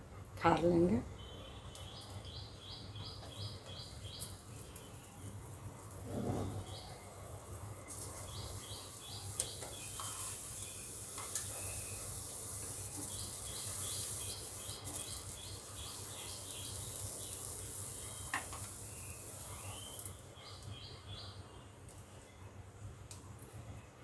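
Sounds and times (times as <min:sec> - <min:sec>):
bird chirping: 0:01.2 - 0:05.3, 0:08.0 - 0:21.6
steady hiss: 0:03.1 - 0:20.8.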